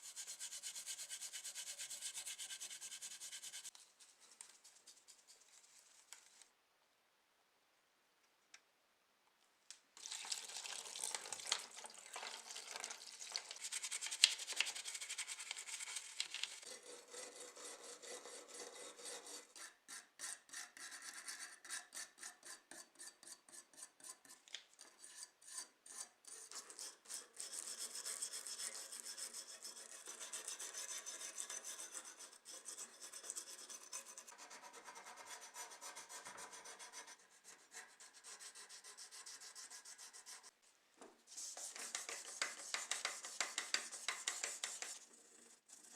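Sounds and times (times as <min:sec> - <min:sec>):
hand rubbing and scraping surface: 0:00.0 - 0:06.5, 0:41.2 - 0:45.9.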